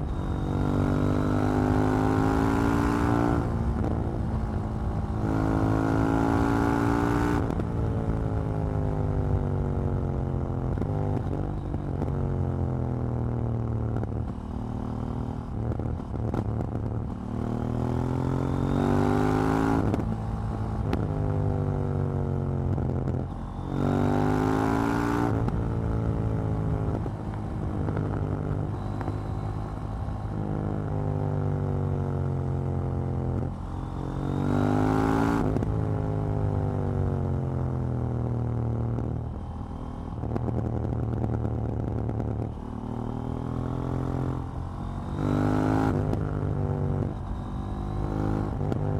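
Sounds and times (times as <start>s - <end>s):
motorcycle engine accelerating: 0.0s - 48.9s
exhaust pops and crackles: 40.2s - 42.6s.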